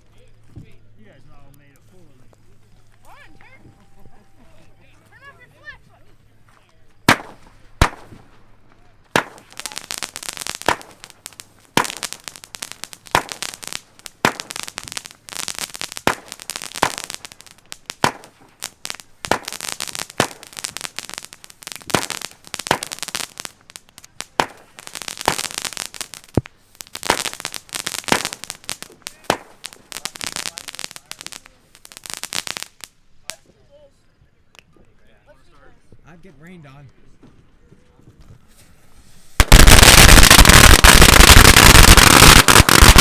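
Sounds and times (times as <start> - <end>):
firework bangs: 7.0 - 33.4, 38.5 - 43.0
firework crackling: 7.0 - 33.4, 38.5 - 43.0.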